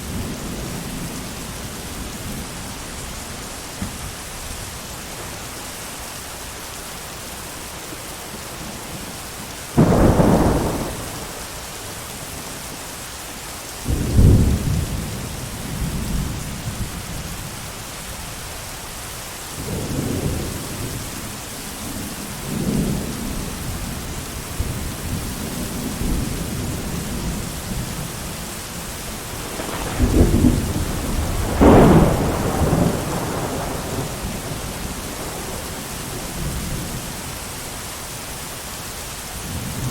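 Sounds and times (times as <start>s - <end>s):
steady rain: 0.0s - 39.9s
thunder rumbling: 8.4s - 12.4s, 13.8s - 17.4s, 29.2s - 37.3s.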